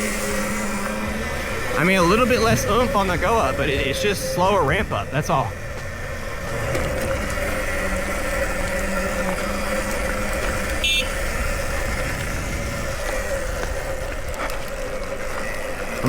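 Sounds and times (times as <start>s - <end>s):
electric motor whine: 0.0s - 16.0s
tyres rumbling on dirt: 0.0s - 16.0s.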